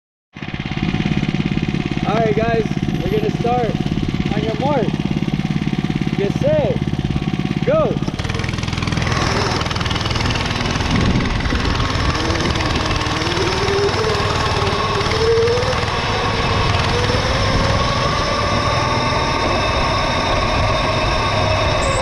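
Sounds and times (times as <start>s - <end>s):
mini bike engine accelerating: 0.4s - 22.0s
wind rushing: 9.8s - 13.3s.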